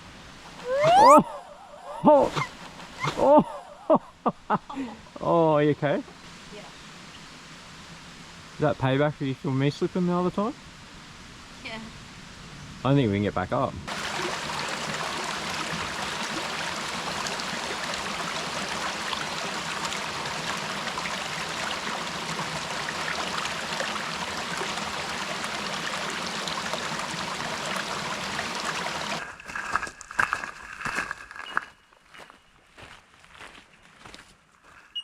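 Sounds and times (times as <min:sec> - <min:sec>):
creek water rushing: 0:13.9 - 0:29.2.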